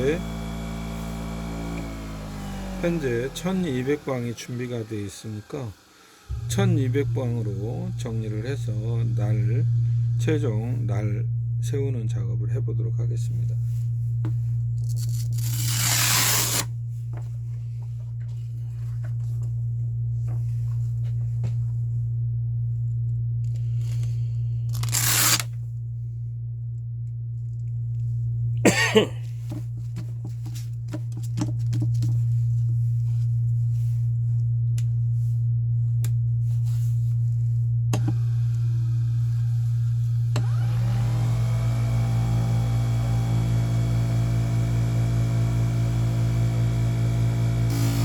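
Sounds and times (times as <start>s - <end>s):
grinder motor humming: 0.0s - 10.2s, 15.0s - 16.7s, 38.0s - 48.0s
blade scraping on grinder: 15.0s - 16.7s, 24.8s - 25.5s.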